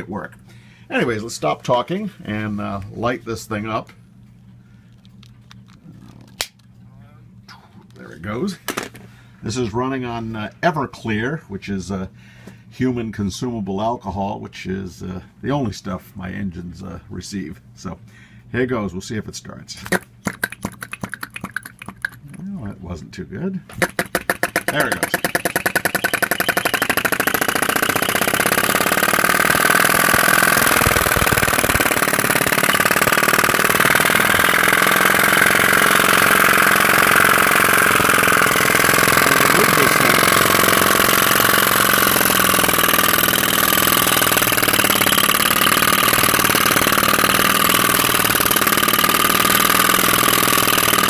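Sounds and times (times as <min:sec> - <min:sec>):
small engine running steadily: 0:23.7 - 0:51.0
high piston squeak: 0:24.9 - 0:28.4.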